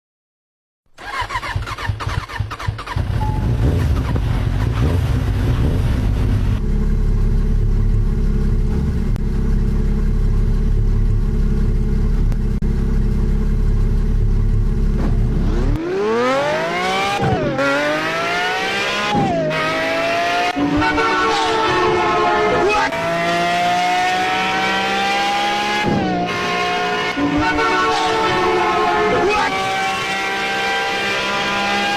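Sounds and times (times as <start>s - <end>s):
engine rumbling and revving: 1.0s - 31.9s.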